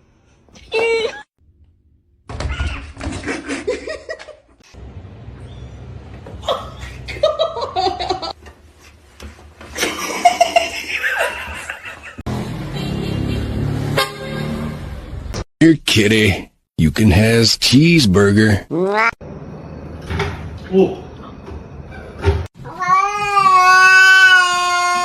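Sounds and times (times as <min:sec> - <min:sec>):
people laughing: 0:09.8 - 0:12.3.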